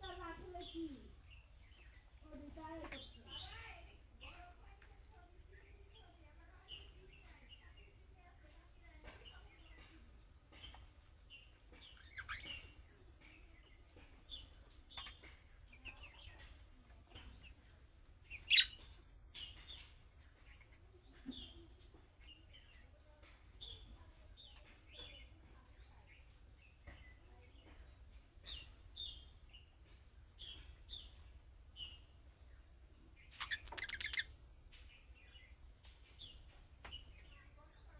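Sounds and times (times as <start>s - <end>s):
budgerigars chirping and warbling: 9.8s - 21.6s, 26.1s - 37.5s
loud sharp bird chirp: 11.9s - 12.8s, 18.3s - 18.8s, 33.2s - 34.4s.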